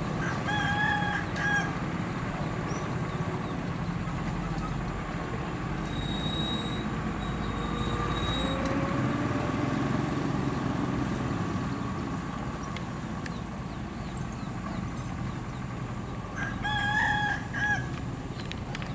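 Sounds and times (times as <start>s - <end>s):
truck passing: 0.0s - 18.9s
rooster crowing: 0.2s - 1.8s, 16.4s - 18.0s.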